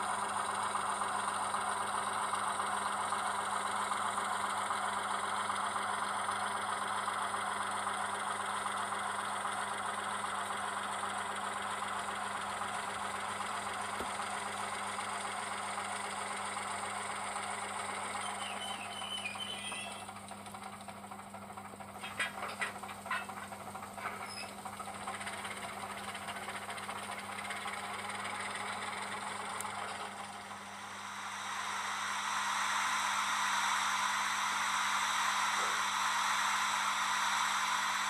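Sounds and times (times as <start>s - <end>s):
model diesel engine through loudspeaker: 0.0s - 38.0s.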